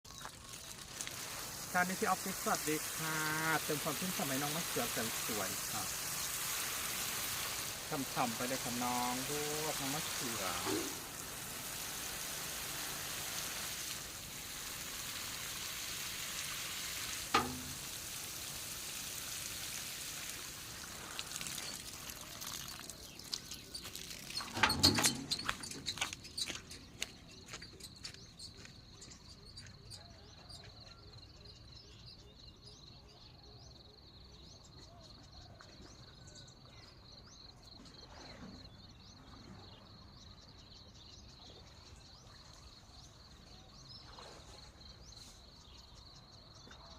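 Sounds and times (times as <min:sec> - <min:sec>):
water spraying on plants: 0:00.1 - 0:27.1.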